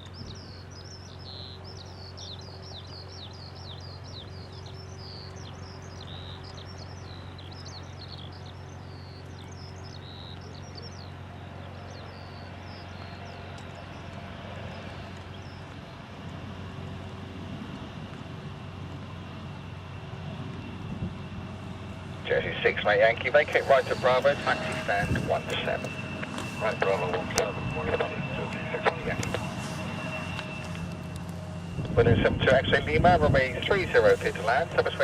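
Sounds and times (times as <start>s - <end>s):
songbird chirping and trilling: 0.0s - 15.8s
aircraft engine rumble: 0.0s - 35.0s
low hum: 0.0s - 35.0s.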